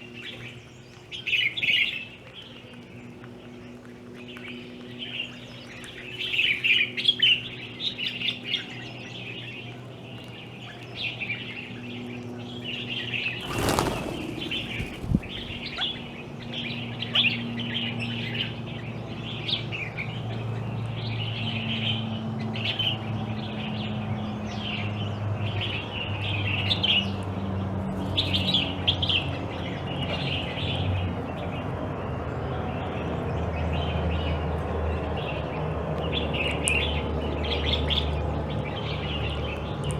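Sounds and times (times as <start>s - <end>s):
birds chirping: 11.9s - 18.9s
loud rustle: 13.4s - 16.4s.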